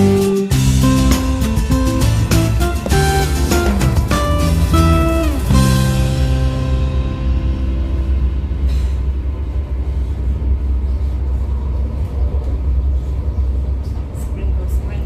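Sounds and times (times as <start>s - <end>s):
music: 0.0s - 10.9s
low rumble: 0.6s - 15.0s
rushing noise: 1.6s - 13.8s.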